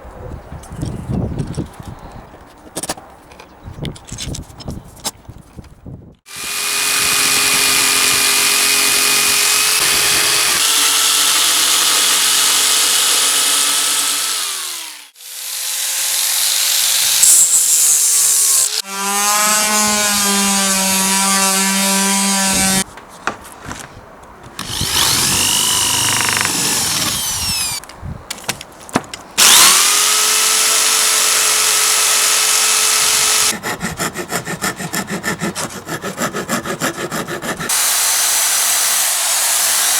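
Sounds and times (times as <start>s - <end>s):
electric power tool working wood: 6.3s - 17.6s, 18.2s - 22.8s, 24.6s - 27.8s, 29.4s - 33.6s, 37.7s - 39.9s.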